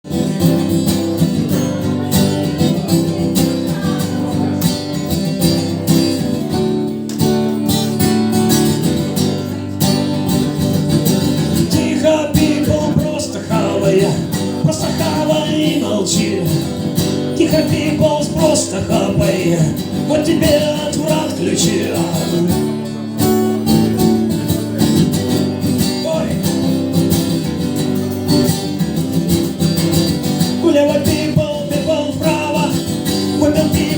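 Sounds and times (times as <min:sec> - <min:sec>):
acoustic guitar strumming: 0:00.0 - 0:33.9
man singing: 0:10.9 - 0:23.0, 0:25.9 - 0:26.9, 0:30.4 - 0:33.9.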